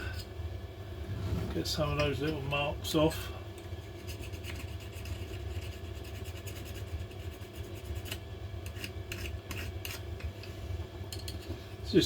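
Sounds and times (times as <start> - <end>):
steady low hum: 0.0 - 12.0
hand file rubbing metal: 4.0 - 10.0.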